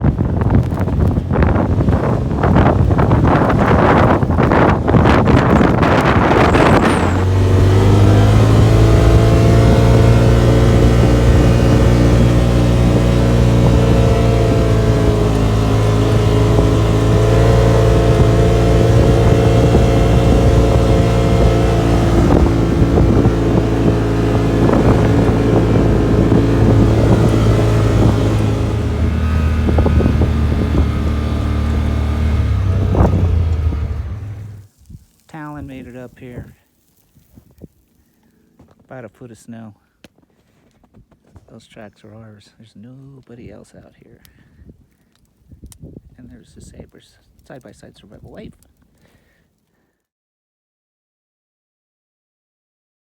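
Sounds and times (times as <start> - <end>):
utv engine running: 0.0 - 34.7
wind noise on microphone: 0.0 - 37.8, 43.4 - 48.7.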